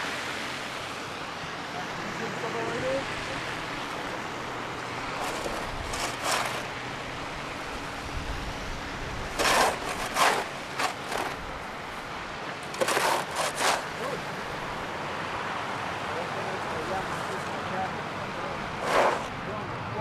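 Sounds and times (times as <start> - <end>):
highway traffic noise: 0.0 - 20.0
vehicle passing by: 12.8 - 20.0
short noisy bursts: 18.8 - 19.3.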